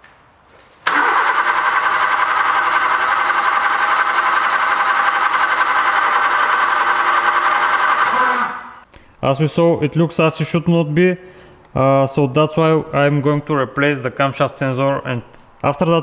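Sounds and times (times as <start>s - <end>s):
starter motor cranking engine: 0.9s - 8.9s.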